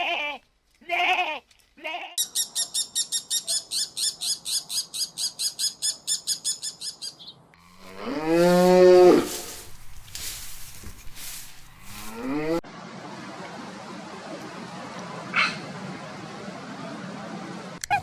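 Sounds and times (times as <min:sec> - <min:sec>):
cow mooing: 0:07.6 - 0:09.4.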